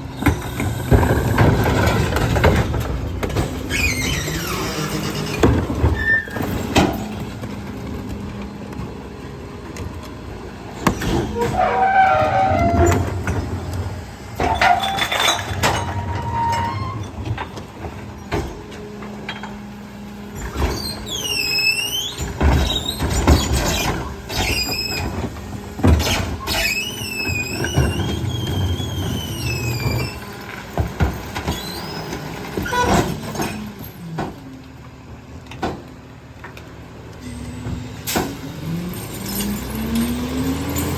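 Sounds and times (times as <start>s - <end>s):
hydraulic packer humming: 0.0s - 40.9s
recycling being crushed: 0.2s - 19.7s, 20.3s - 36.8s
metal squeals: 3.4s - 7.4s, 10.8s - 18.5s, 20.3s - 30.4s, 31.4s - 33.9s.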